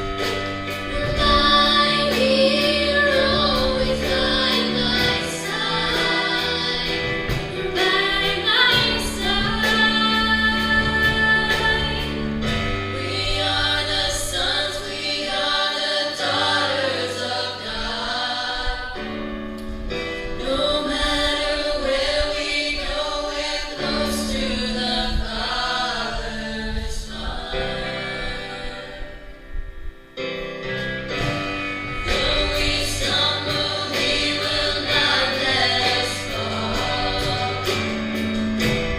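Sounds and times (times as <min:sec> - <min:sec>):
gospel choir singing: 0:00.0 - 0:38.9
instrumental accompaniment with bass: 0:00.0 - 0:38.9.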